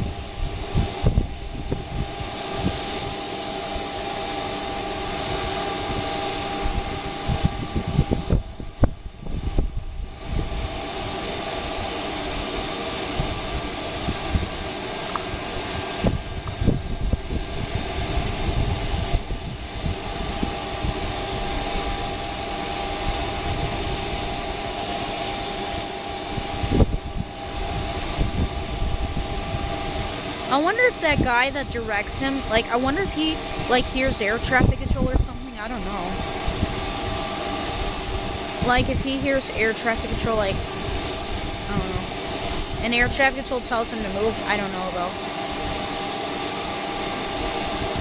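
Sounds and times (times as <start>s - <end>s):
jet engines idling: 10.0s - 47.9s.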